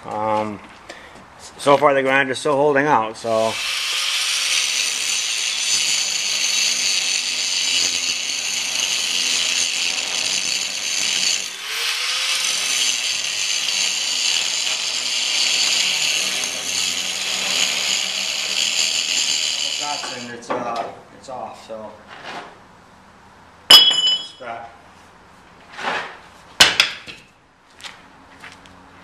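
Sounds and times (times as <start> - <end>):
angle grinder grinding steel: 3.4 - 20.3.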